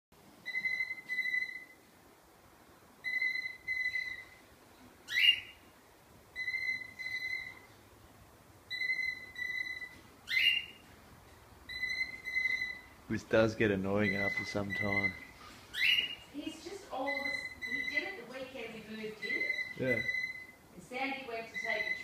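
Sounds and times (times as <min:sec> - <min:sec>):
bird mimicking telephone ring: 0:00.5 - 0:01.8, 0:03.0 - 0:04.4, 0:06.4 - 0:07.7, 0:08.7 - 0:10.8, 0:11.7 - 0:12.9, 0:17.0 - 0:18.2, 0:19.2 - 0:20.6, 0:21.5 - 0:22.0
bird rising whistle: 0:03.0 - 0:04.4, 0:06.4 - 0:07.7, 0:15.0 - 0:16.2.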